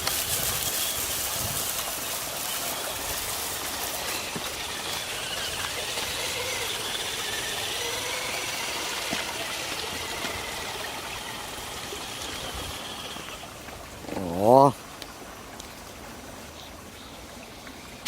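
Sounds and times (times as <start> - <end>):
toy car motor whining: 0.0 - 13.4
steady rushing hiss: 0.0 - 13.7.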